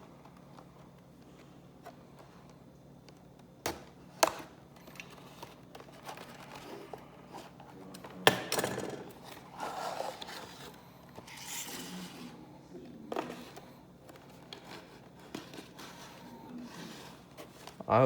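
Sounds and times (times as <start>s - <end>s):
packaging scraping and crinkling: 4.8s - 8.2s, 9.0s - 12.4s, 13.2s - 18.0s.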